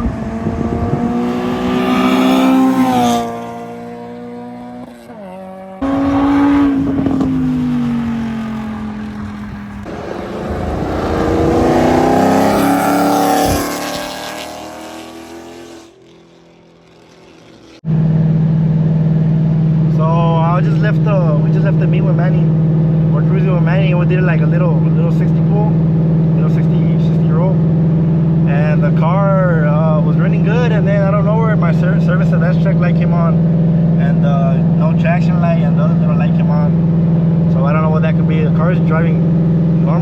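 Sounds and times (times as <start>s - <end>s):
car engines accelerating hard: 0.0s - 40.0s
steady engine drone: 0.0s - 40.0s.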